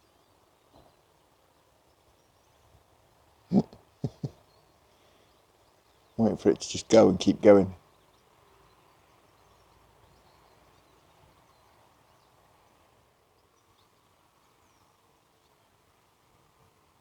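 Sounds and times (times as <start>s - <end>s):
faint outdoor background hiss: 0.0s - 17.0s.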